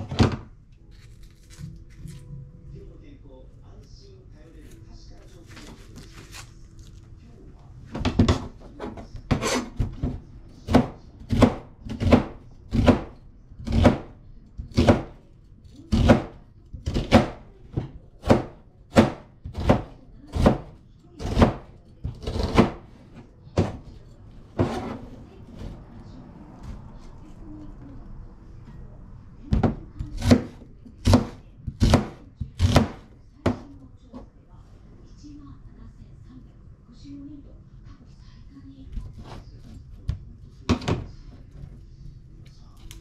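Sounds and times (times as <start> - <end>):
knife chopping on cutting board: 8.0 - 15.2, 15.9 - 22.9, 29.6 - 33.6.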